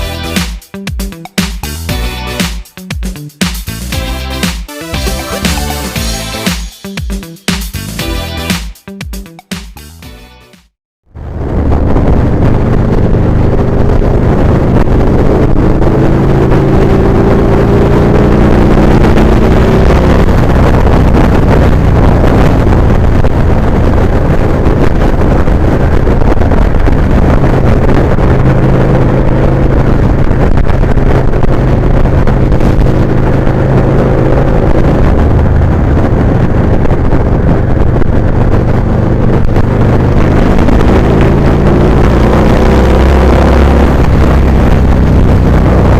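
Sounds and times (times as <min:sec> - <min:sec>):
motorcycle engine running: 0:00.0 - 0:10.2, 0:11.1 - 0:45.9
wind buffeting microphone: 0:11.2 - 0:45.9.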